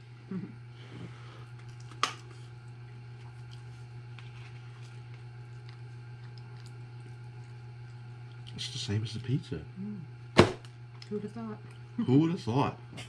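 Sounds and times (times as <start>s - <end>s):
person chewing: 1.4s - 8.6s.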